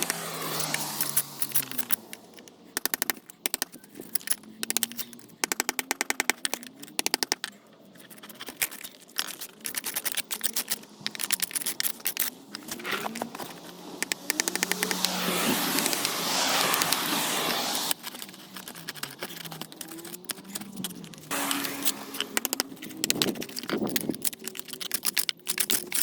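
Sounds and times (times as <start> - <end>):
power tool hammering: 21.3 - 23.3.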